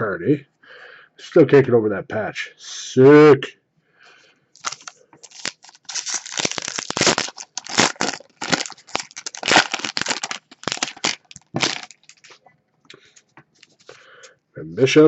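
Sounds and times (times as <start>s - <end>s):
plastic wrapper crinkling: 4.6s - 12.4s.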